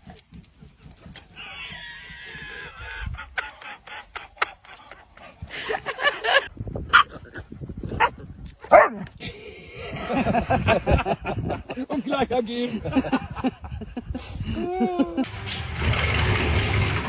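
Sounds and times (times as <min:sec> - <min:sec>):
dog barking: 0:08.0 - 0:09.1.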